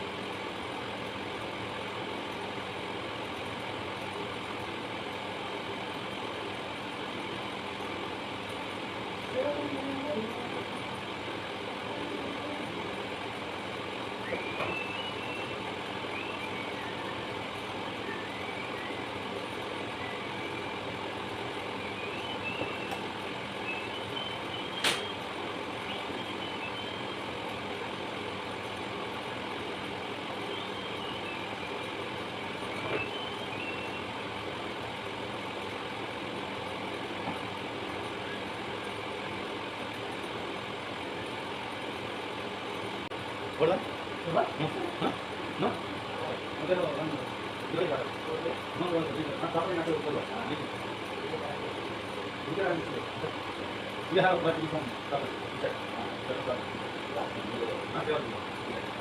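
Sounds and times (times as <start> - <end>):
machine hum: 0.0 - 59.0
faint high chirps: 14.2 - 17.3, 21.7 - 27.3, 30.4 - 34.2
sharp click: 24.8 - 25.1.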